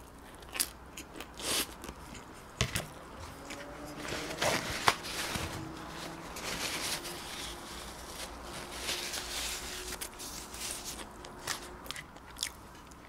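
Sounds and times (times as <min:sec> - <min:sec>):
chewing food: 0:10.4 - 0:13.0.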